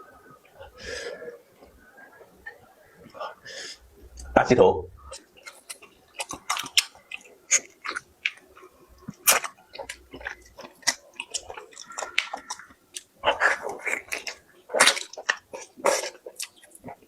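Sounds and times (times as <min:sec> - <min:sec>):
mouth clicks: 0:00.0 - 0:17.0
chewing crunches: 0:05.1 - 0:17.0.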